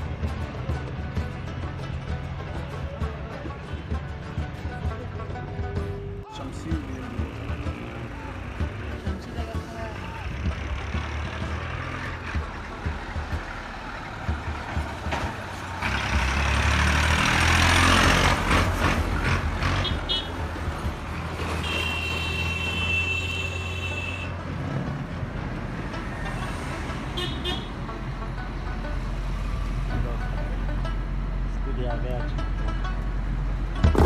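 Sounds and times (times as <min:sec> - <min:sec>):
steady low traffic hum: 0:00.0 - 0:34.0
vehicle passing by: 0:06.8 - 0:21.6
car horn: 0:19.7 - 0:20.4, 0:21.5 - 0:24.4, 0:27.1 - 0:27.8.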